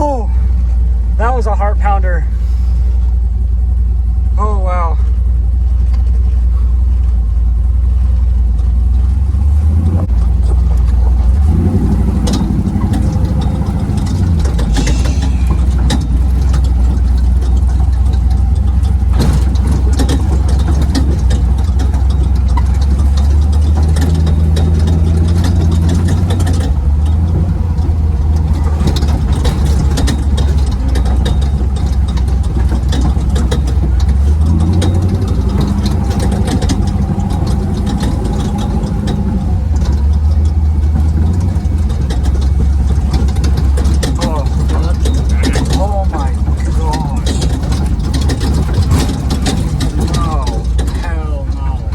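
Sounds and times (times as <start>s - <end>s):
truck engine running: 0.0s - 51.9s
rattles and knocks: 5.0s - 51.9s.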